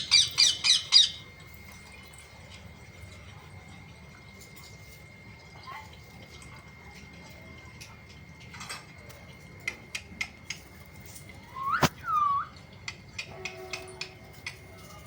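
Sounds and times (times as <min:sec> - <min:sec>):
parrot whistle-like call: 0:11.5 - 0:12.6.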